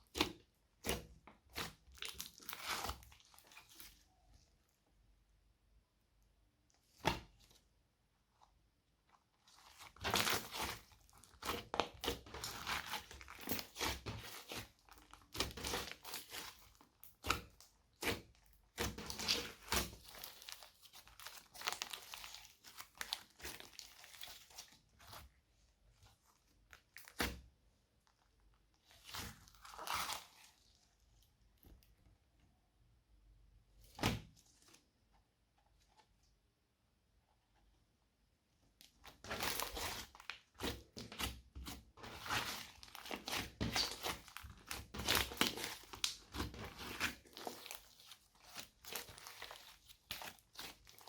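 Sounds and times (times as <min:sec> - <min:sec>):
slime squishing and crackling: 0:00.0 - 0:04.3, 0:09.1 - 0:25.5, 0:26.1 - 0:31.8, 0:38.8 - 0:51.0.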